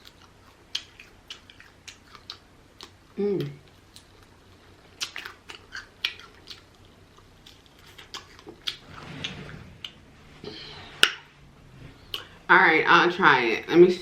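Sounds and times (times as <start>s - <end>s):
close chewing with mouth clicks: 0.0s - 8.8s.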